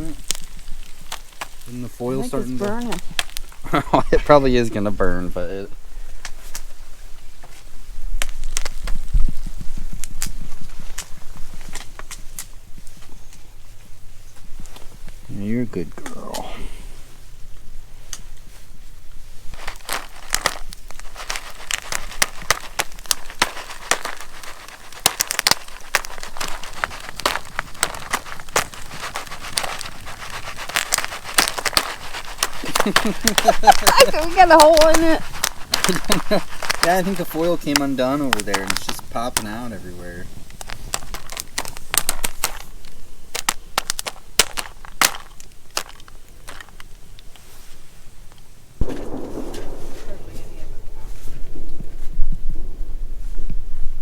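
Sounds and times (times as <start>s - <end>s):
popcorn popping: 19.5s - 39.7s, 40.5s - 46.8s.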